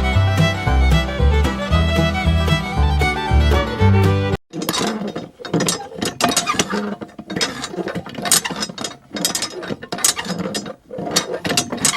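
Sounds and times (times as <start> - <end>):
mechanical clicking and rattling: 4.5 - 11.9.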